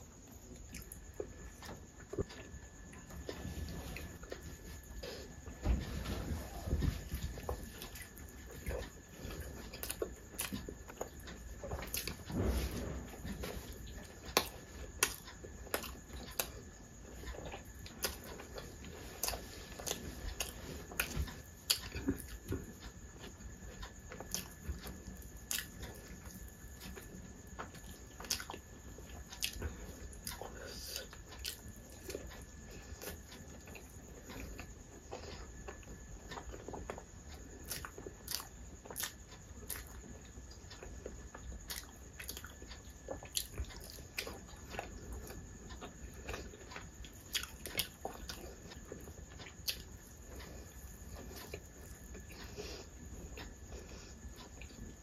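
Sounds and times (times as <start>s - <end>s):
person chewing with mouth smacks: 5.9s - 12.3s, 13.2s - 37.0s, 37.6s - 40.1s, 40.8s - 55.0s
food crunching: 41.7s - 48.5s.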